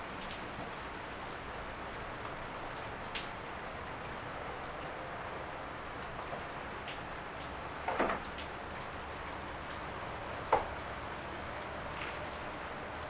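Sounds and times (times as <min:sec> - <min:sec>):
rain falling on leaves: 0:00.0 - 0:13.0.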